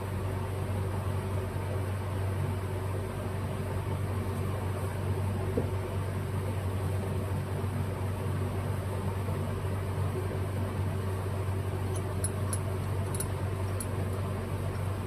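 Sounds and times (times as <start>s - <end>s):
machine humming: 10.8s - 15.0s.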